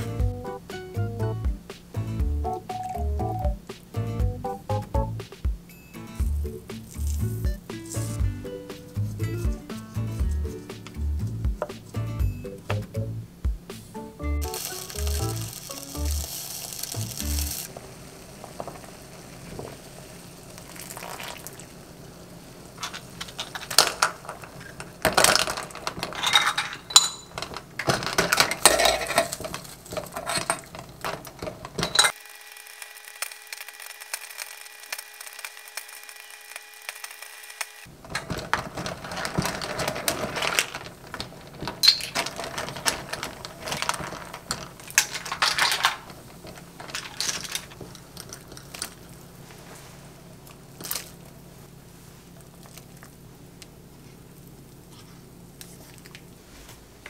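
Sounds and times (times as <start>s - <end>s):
broth boiling and bubbling: 14.5s - 26.1s.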